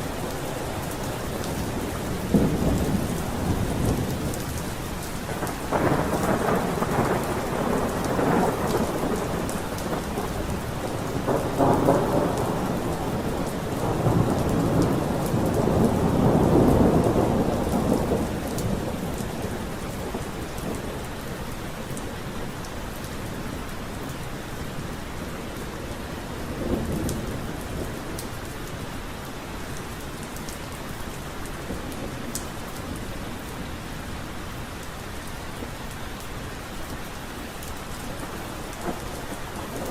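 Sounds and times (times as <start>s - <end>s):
steady rain falling: 0.0s - 39.9s
thunder rumbling: 0.1s - 22.2s, 38.0s - 39.9s.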